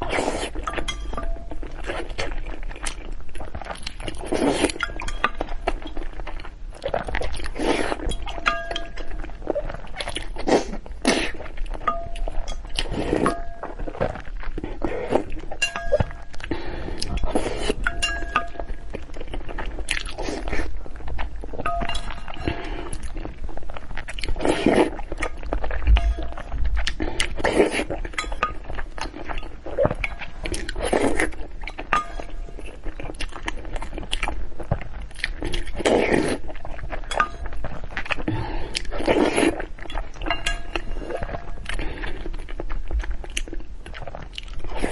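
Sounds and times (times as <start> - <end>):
chewing and crunching food: 0.0 - 44.9
utensils clinking against dishes: 17.3 - 18.8, 21.6 - 22.6, 40.2 - 41.1.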